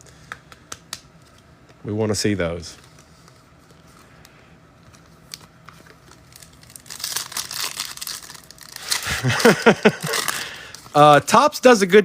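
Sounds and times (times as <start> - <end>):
foil wrapper crinkling and tearing: 4.9 - 11.4.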